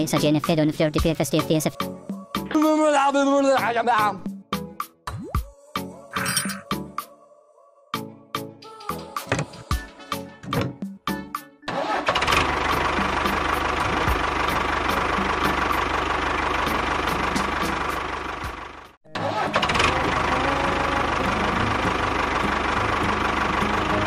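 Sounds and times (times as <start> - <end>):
small engine running: 11.8 - 24.0.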